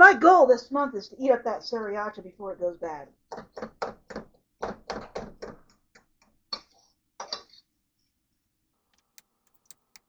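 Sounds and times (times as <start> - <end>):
sharp clicks: 9.0 - 10.0.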